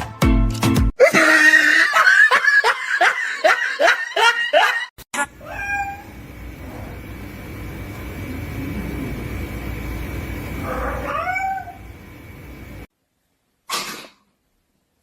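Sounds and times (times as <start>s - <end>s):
music: 0.0s - 0.9s
cat meowing: 5.4s - 6.2s, 10.7s - 11.9s.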